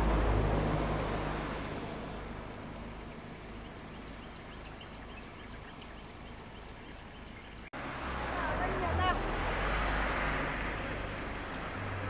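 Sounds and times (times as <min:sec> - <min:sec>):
bird chirping: 0:02.9 - 0:07.7.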